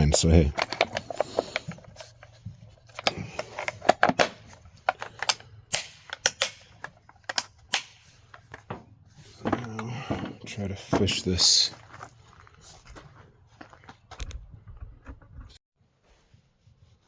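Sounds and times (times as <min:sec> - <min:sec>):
plastic and metal parts clicking: 0:00.0 - 0:08.7.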